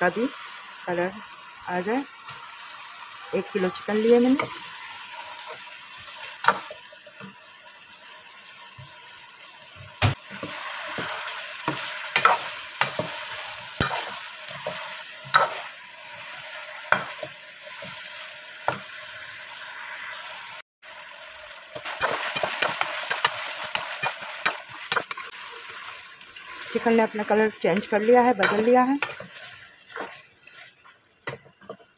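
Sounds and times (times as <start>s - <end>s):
chicken sizzling in hot oil: 0.0s - 31.9s
metal ladle scraping a pan: 27.9s - 31.9s.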